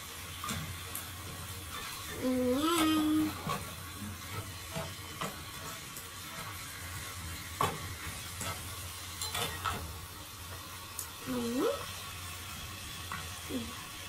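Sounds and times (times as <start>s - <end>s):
chicken sizzling in a pot: 0.0s - 14.0s.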